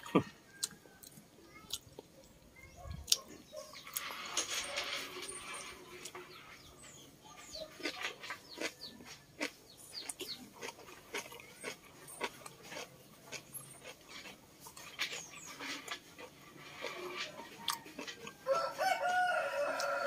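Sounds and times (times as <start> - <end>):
crunchy lettuce chewing: 7.5 - 20.0.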